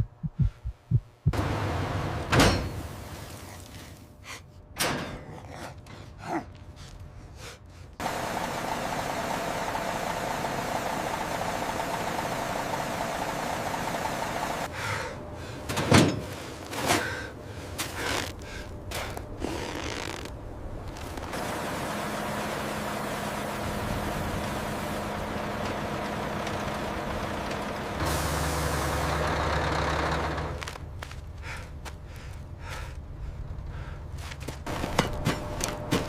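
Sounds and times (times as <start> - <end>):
knocks and clanks: 2.3 - 2.8.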